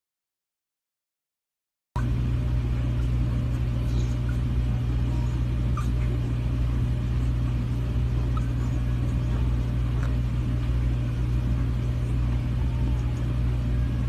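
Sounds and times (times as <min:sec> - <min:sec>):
low engine rumble: 0:02.0 - 0:14.0.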